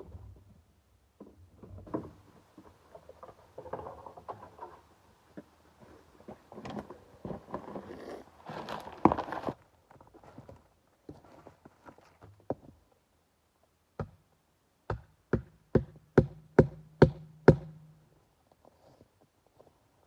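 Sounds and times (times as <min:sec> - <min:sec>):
rustling: 0:02.4 - 0:12.2.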